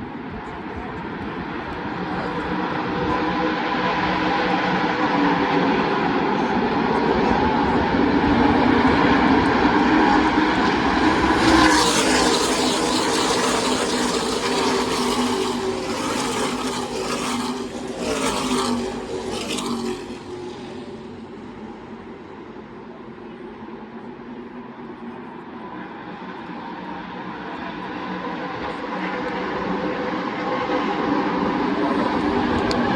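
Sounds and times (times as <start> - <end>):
race truck engines passing: 9.8 - 23.2.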